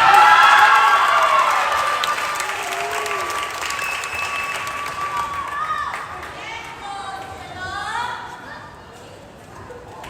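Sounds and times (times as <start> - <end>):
crowd cheering and screaming: 0.0 - 6.0
applause: 0.0 - 6.8.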